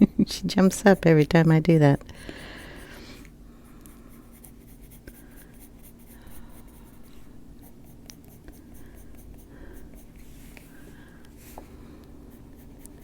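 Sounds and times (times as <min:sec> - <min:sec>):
pencil scratching on paper: 0:00.5 - 0:03.0, 0:03.9 - 0:10.6, 0:12.2 - 0:13.0.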